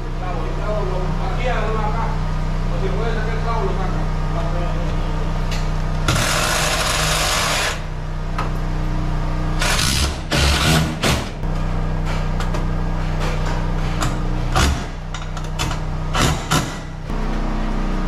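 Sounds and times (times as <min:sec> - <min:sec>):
steady low hum: 0:00.0 - 0:18.0
power tool running: 0:05.8 - 0:12.6.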